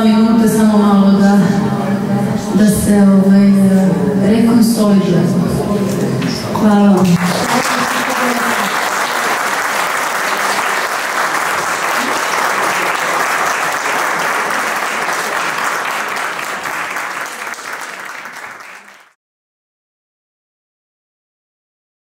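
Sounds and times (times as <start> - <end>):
audience applauding: 7.0 - 19.2.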